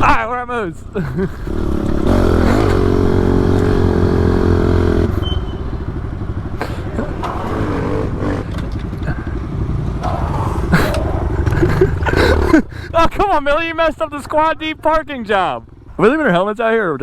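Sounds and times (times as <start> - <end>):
pit bike engines running: 0.0 - 17.0.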